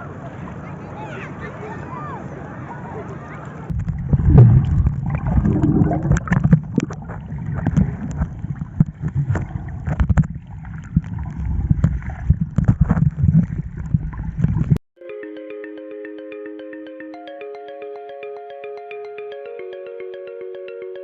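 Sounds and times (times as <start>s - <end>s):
wind rumbling on microphone: 2.3s - 14.8s
water splashing: 2.8s - 14.8s.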